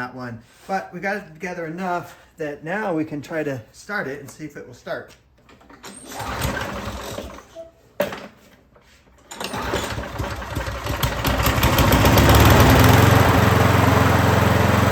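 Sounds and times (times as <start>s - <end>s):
lawnmower engine starting and running: 5.6s - 7.5s, 9.1s - 14.9s.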